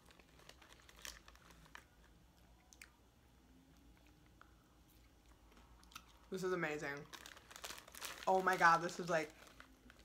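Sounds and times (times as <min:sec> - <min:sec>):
person chewing popcorn: 0:00.0 - 0:03.0, 0:03.7 - 0:06.3.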